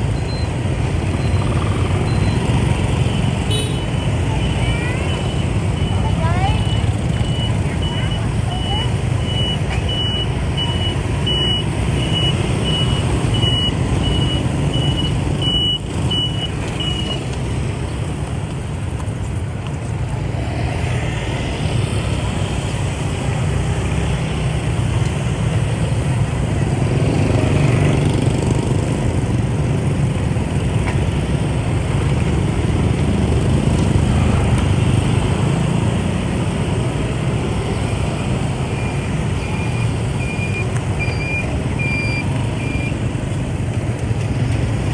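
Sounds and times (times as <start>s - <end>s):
motorbike and traffic engines: 0.0s - 44.9s
road rumble: 0.0s - 44.9s
high electronic beeps: 0.1s - 3.0s, 38.6s - 43.0s.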